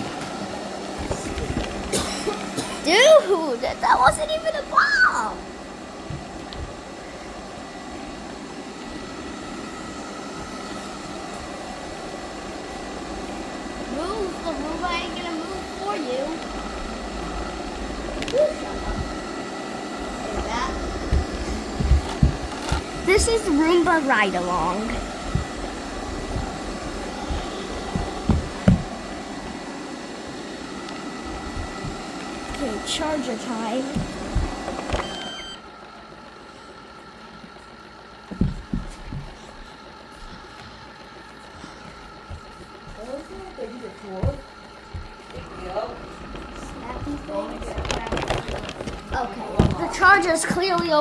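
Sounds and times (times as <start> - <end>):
robot vacuum whirring: 0.0 - 51.0
faint high whine: 30.9 - 35.7.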